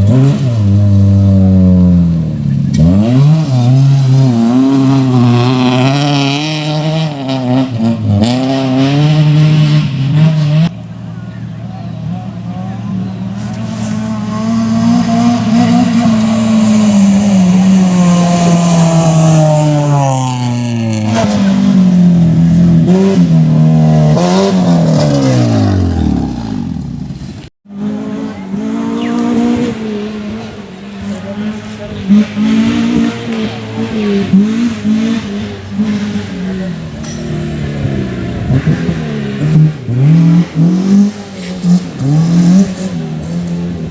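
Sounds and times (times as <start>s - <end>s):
race car engine revving: 0.0s - 43.9s.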